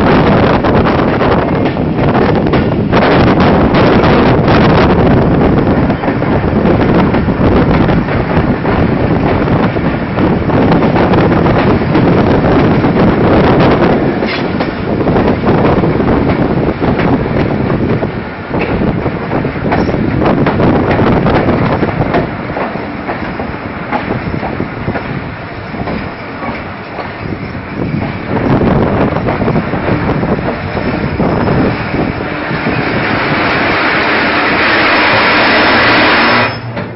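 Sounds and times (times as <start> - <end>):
train rumbling into station: 0.0 - 36.9
wheels clicking over rail joints: 13.6 - 36.9.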